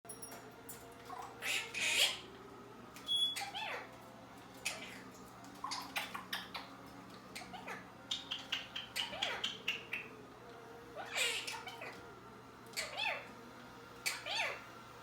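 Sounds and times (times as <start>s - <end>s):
parrot squawks: 1.1s - 2.3s, 3.1s - 3.9s, 4.6s - 5.0s, 7.3s - 10.1s, 11.0s - 12.0s, 12.7s - 13.3s, 14.0s - 14.6s.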